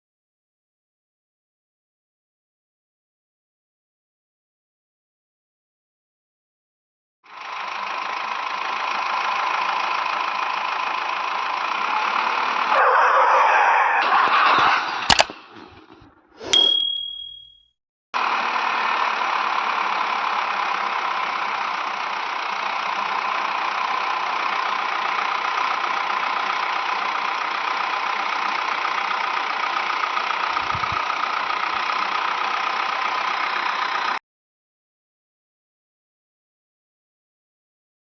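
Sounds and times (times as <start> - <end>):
steady engine-like running noise: 7.3 - 16.1, 18.2 - 34.2.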